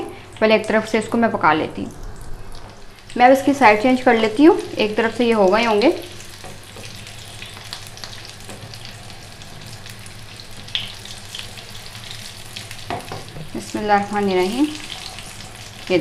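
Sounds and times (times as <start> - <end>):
food frying in hot oil: 0.0 - 16.0.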